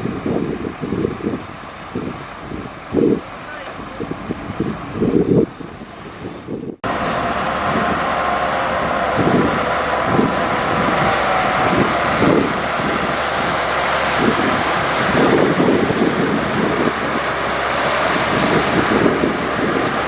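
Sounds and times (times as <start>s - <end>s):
wind noise on microphone: 0.0s - 20.0s
heavy machinery engine: 17.2s - 20.0s.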